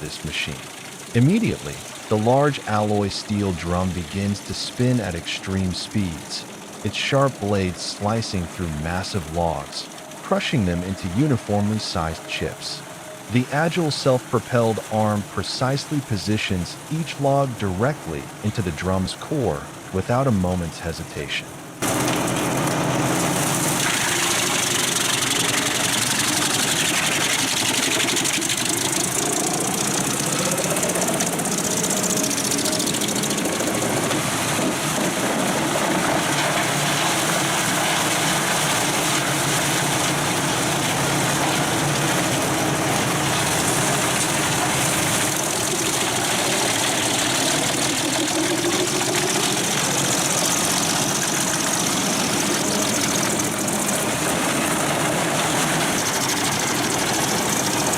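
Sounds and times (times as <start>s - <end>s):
wood chipper grinding logs: 21.8s - 57.9s.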